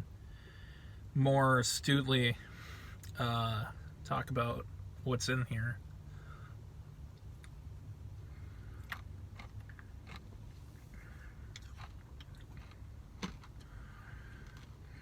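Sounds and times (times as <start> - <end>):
low steady hum: 0.0 - 15.0
person chewing: 8.7 - 14.9.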